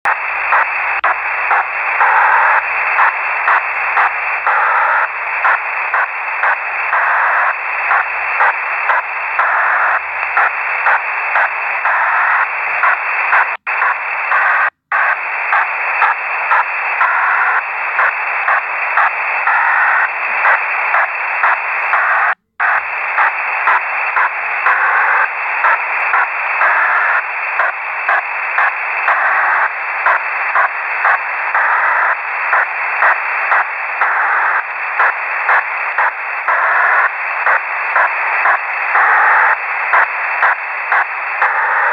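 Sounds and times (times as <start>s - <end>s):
pulsing radio hiss: 0.0s - 41.9s.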